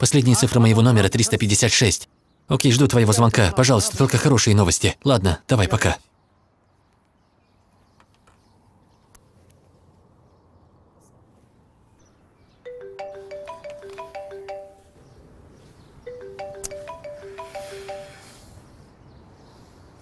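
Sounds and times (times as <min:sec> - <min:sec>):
mobile phone ringtone chimes: 0:12.7 - 0:15.0, 0:16.1 - 0:18.6.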